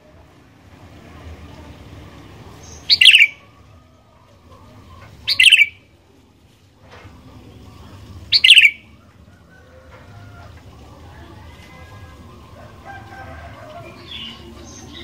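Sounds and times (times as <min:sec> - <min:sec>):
bulbul calling: 0:02.6 - 0:03.4, 0:05.2 - 0:05.8, 0:08.3 - 0:08.9.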